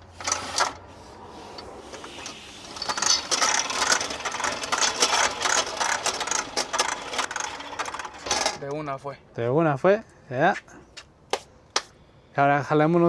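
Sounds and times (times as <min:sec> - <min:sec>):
metallic clicking and rattling: 0:01.6 - 0:08.8.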